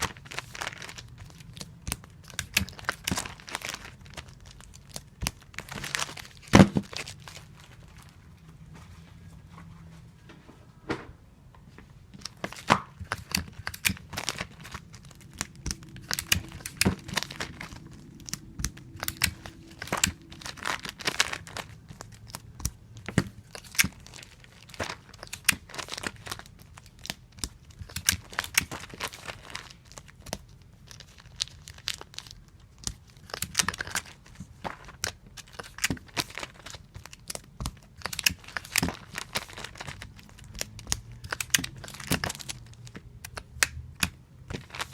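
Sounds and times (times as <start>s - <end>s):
comic books rustling: 0.0s - 44.9s
adhesive tape tearing: 12.5s - 22.8s.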